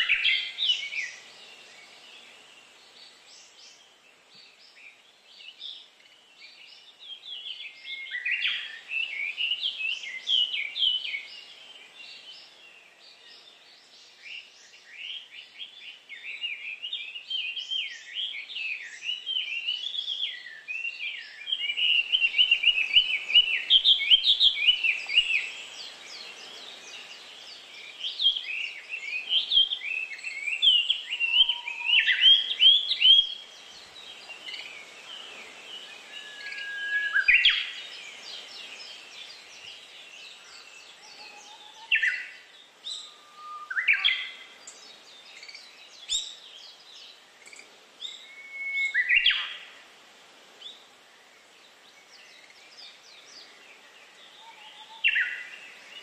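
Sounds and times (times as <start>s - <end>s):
songbirds chirping: 0.0s - 56.0s
whistled bird sweeps: 34.5s - 37.9s, 48.1s - 49.6s.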